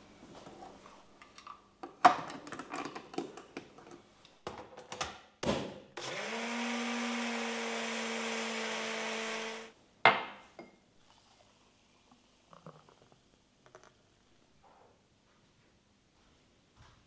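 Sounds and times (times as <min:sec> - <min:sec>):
kitchen appliance motor whirring: 0:06.0 - 0:09.7.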